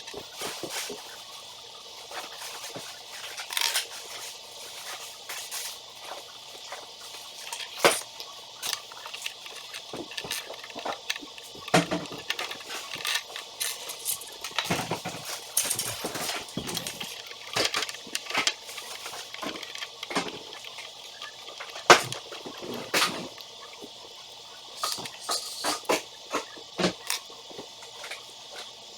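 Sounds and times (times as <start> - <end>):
steady hiss: 0.0 - 28.9
toy pieces clicking and clattering: 3.4 - 3.9, 7.4 - 22.2
toy pieces snapping: 7.4 - 14.8.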